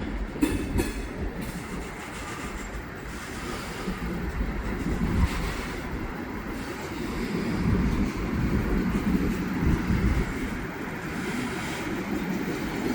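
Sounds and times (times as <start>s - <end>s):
train wheels rumbling on rails: 0.0s - 12.9s.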